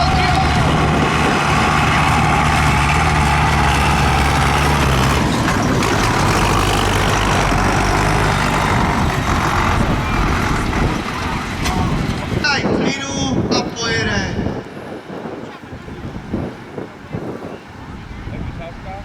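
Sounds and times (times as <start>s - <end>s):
tractor engine running: 0.0s - 12.6s.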